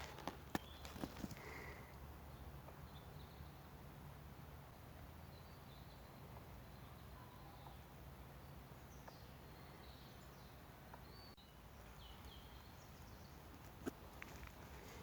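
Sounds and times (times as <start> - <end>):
faint bird chirps: 5.2 - 13.5.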